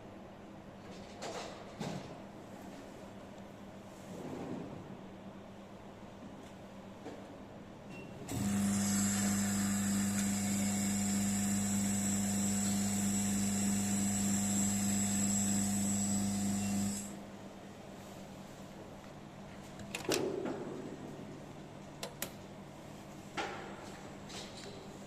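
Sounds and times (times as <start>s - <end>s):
electric oil pump humming: 8.3s - 17.2s.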